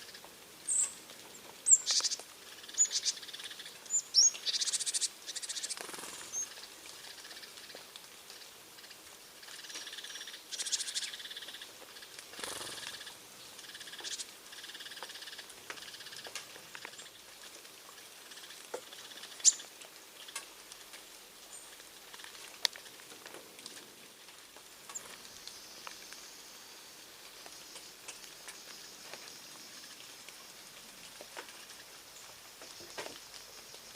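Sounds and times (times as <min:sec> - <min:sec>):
small birds chirping: 0:00.0 - 0:23.2
light ticks and pattering: 0:00.0 - 0:26.4, 0:27.0 - 0:33.9.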